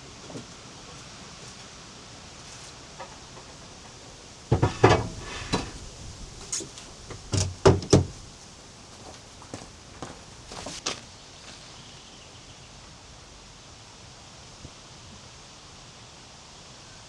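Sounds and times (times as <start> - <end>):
hard objects knocking and clattering: 3.0 - 5.8.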